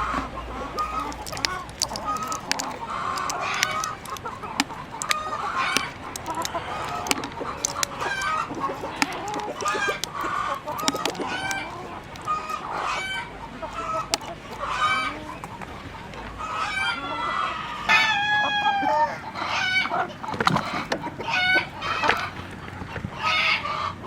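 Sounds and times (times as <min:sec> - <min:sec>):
chickens clucking: 0:00.0 - 0:24.0
sharp clicks: 0:00.7 - 0:12.9, 0:14.1 - 0:14.6.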